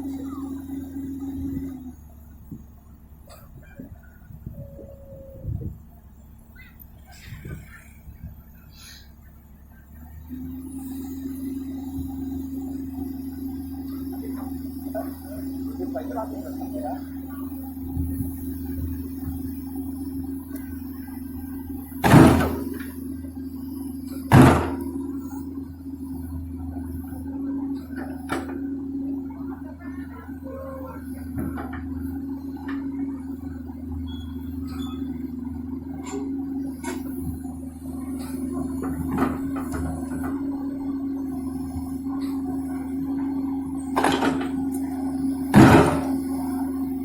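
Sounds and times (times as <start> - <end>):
excavator diesel engine running: 0.0 - 47.0
machine knocks and clanks: 45.5 - 46.3.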